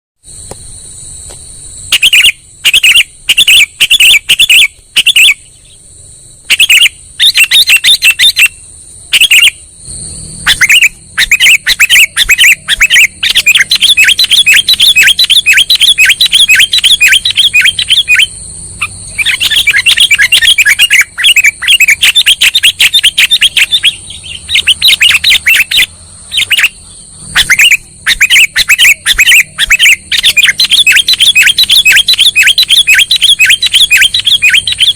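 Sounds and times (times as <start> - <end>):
high-pitched whine: 0.2 - 34.9
bird chirping: 0.4 - 34.9.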